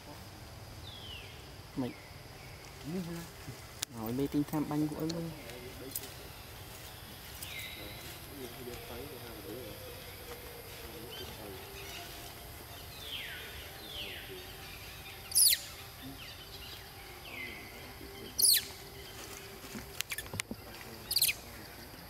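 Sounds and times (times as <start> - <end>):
loud high falling bird calls: 6.4 - 21.5.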